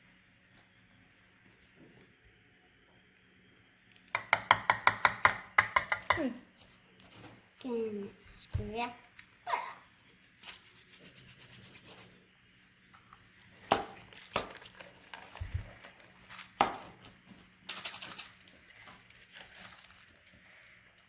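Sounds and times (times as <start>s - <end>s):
slime crackling and squishing: 12.8s - 21.0s.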